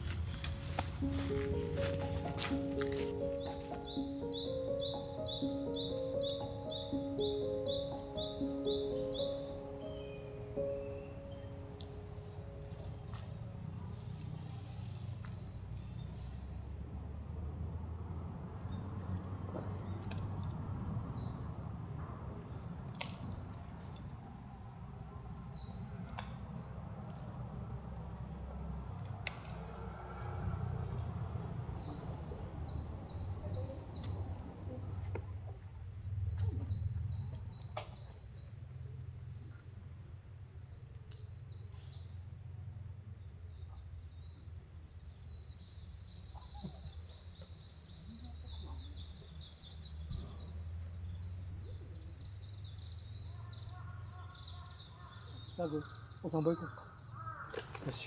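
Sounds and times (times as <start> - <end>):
birds chirping and trilling: 0.0 - 13.9, 44.8 - 58.0.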